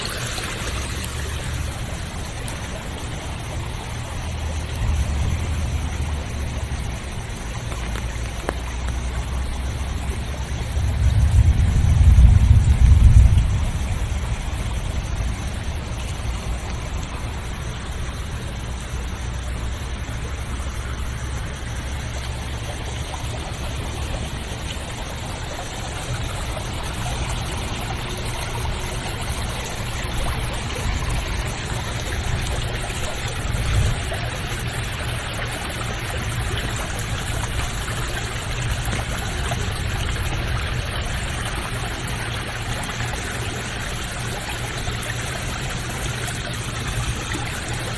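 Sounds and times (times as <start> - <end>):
flowing water rushing: 0.0 - 47.9
low rumble: 10.0 - 19.1.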